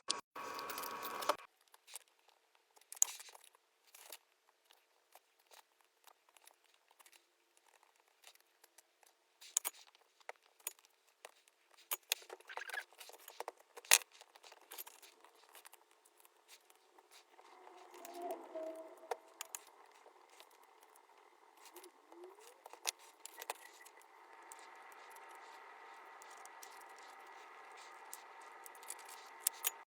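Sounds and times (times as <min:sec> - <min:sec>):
scraping and rustling: 0:11.3 - 0:29.9.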